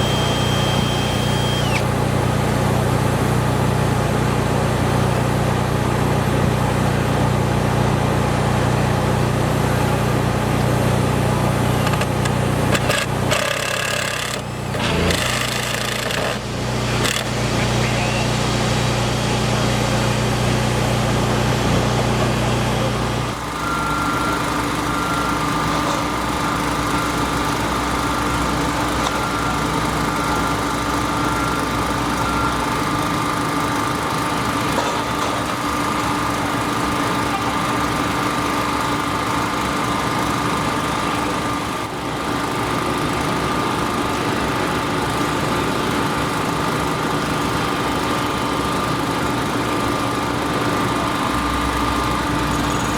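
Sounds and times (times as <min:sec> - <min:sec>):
steady higher whine: 0:00.0 - 0:02.0
construction machinery engine running: 0:00.0 - 0:52.9.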